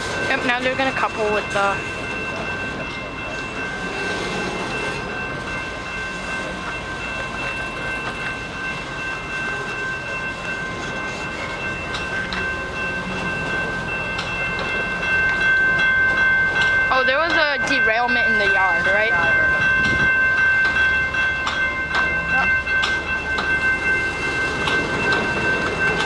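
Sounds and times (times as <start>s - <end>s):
constant high-pitched tone: 0.0s - 26.0s
freight train rumbling: 0.0s - 26.0s.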